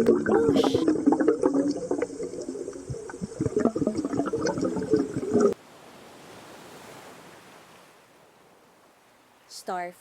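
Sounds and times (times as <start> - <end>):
underwater bubbling and gurgling: 0.0 - 5.6.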